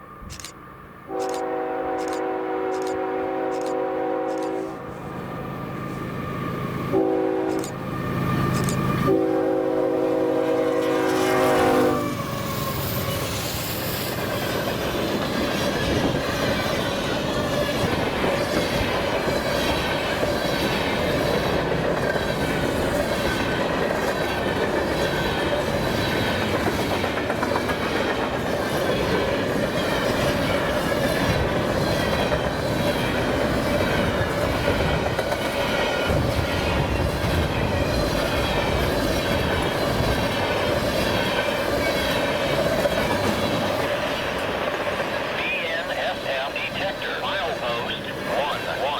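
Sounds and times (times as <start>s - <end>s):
train wheels rumbling on rails: 0.0s - 48.9s
locomotive horn blasts: 1.1s - 4.9s, 6.9s - 7.7s, 9.0s - 12.2s.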